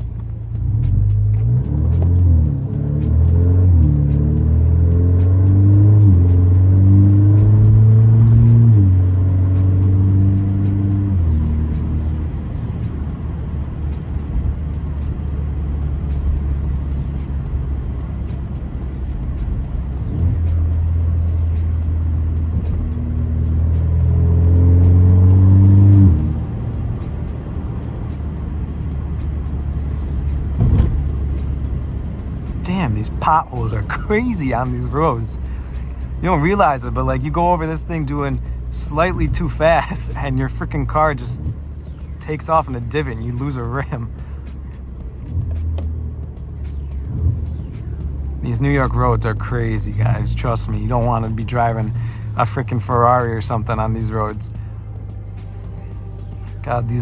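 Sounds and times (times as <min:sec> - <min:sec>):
car engine accelerating: 0:00.0 - 0:57.0
road noise: 0:00.0 - 0:57.0.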